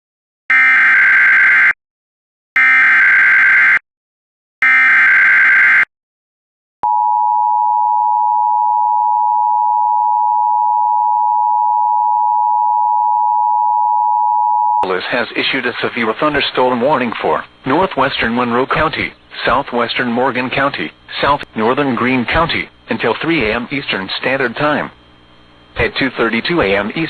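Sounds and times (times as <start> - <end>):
steady alarm tone: 0.5 - 1.8, 2.6 - 3.8, 4.6 - 5.9.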